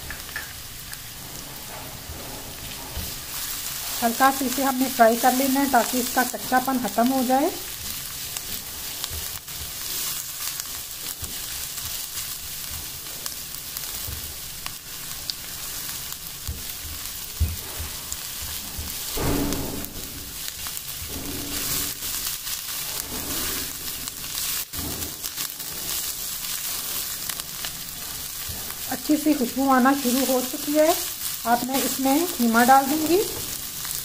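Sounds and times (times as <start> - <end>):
spatula stirring in pan: 0.0 - 19.2, 19.8 - 34.0
onions sizzling in oil: 0.0 - 34.0.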